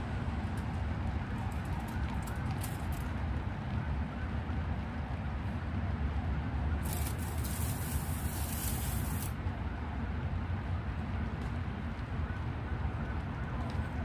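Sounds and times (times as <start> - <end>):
outdoor background rumble: 0.0 - 14.0
bright hiss: 6.8 - 9.3
steady rain: 6.8 - 9.4.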